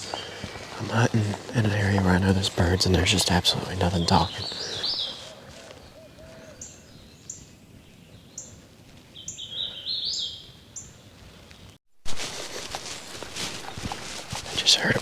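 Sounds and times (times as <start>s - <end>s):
songbirds singing: 0.0s - 11.8s, 13.2s - 15.0s
rustling: 11.2s - 15.0s.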